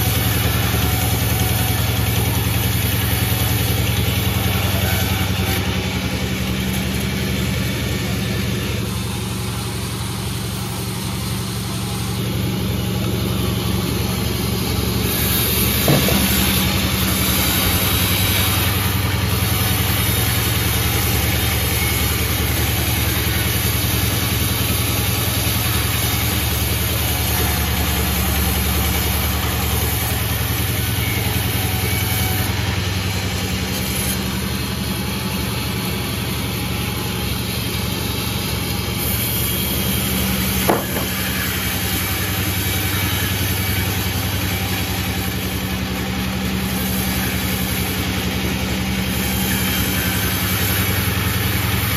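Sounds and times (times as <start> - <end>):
sawmill engine running: 0.0 - 51.9
sharp knock: 15.8 - 17.2, 40.6 - 41.2.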